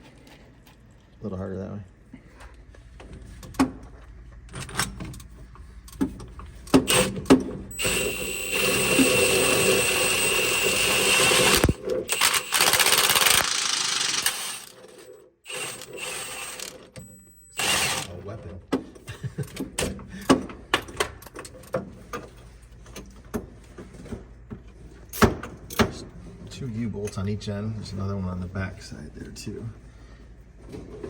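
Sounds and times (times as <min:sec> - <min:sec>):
power tool running: 0:06.9 - 0:16.9, 0:17.6 - 0:18.2.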